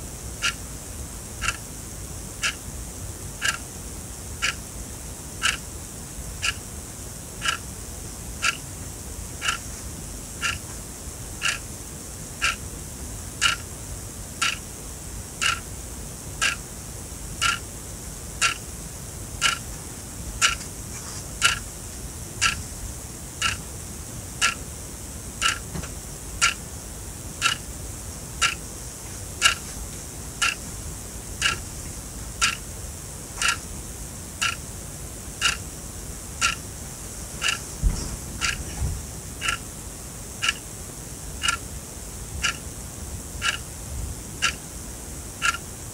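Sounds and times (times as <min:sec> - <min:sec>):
clock ticking: 0:31.4 - 0:31.6.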